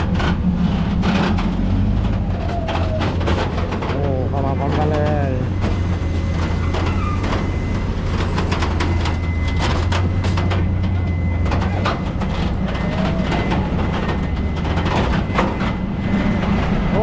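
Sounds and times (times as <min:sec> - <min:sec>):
truck engine humming: 0:00.0 - 0:17.0.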